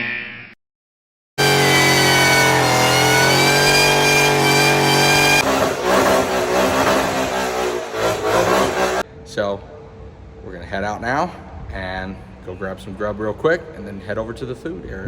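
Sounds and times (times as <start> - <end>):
car engine revving: 1.4 - 9.0
rough pulsing engine: 1.4 - 9.0.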